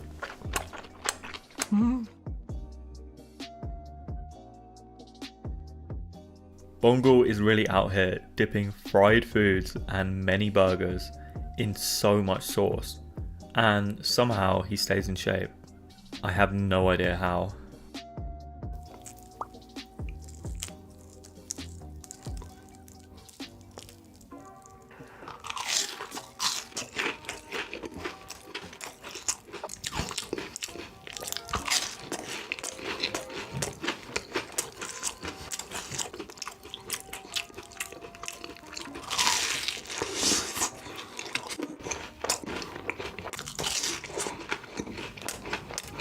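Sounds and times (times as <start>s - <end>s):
crunching and chewing of crisp food: 0.0s - 2.0s, 18.8s - 46.0s.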